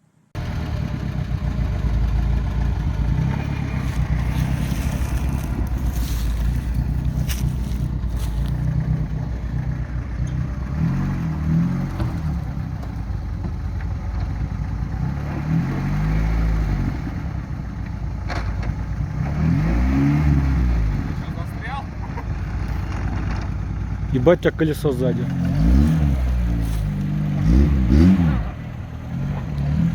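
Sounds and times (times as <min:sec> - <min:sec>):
car engine revving: 0:00.4 - 0:13.2, 0:19.1 - 0:21.2, 0:24.5 - 0:29.9
knocks and scrapes: 0:03.3 - 0:09.0, 0:25.3 - 0:27.7.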